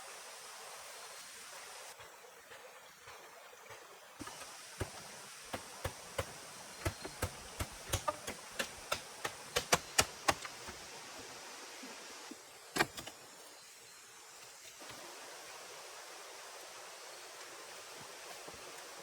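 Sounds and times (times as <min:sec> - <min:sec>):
hiss of rain or running water: 0:00.0 - 0:19.0
sharp knocks: 0:04.2 - 0:10.8.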